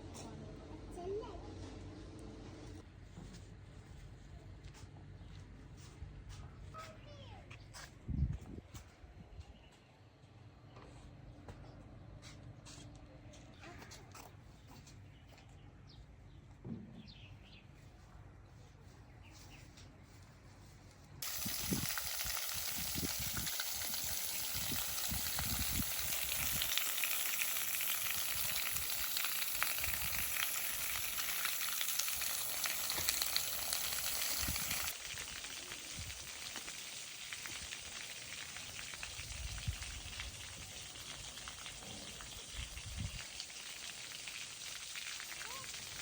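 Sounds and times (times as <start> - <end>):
spraying water hiss: 21.2 - 46.0.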